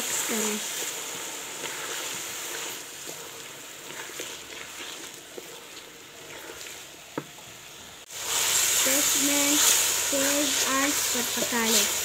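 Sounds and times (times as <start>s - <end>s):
vegetables sizzling in oil: 0.0s - 12.0s
stirring clicks: 0.7s - 7.5s.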